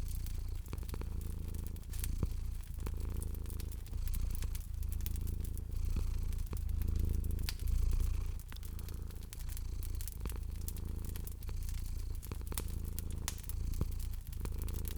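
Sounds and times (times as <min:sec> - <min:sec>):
cat purring: 0:00.0 - 0:14.9
fireplace fire crackling: 0:00.0 - 0:14.9.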